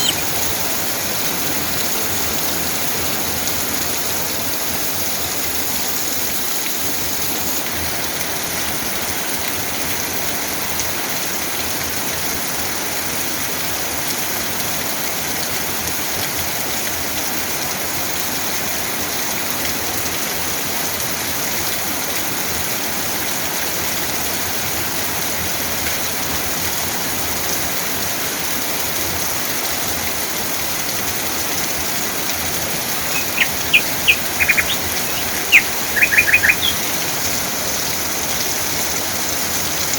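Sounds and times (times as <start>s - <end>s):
bird chirping sharp notes: 0.0s - 0.8s, 32.6s - 37.9s
steady rain falling: 0.0s - 39.9s.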